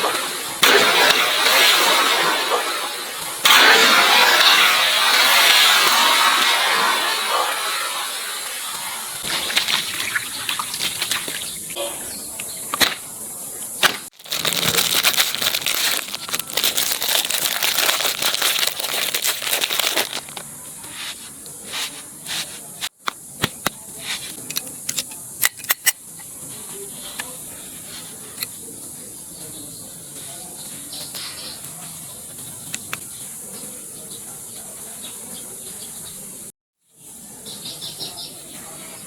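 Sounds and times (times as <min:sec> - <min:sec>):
hissing rush: 0:00.0 - 0:10.4
sharp clicks and crackles: 0:13.8 - 0:20.5.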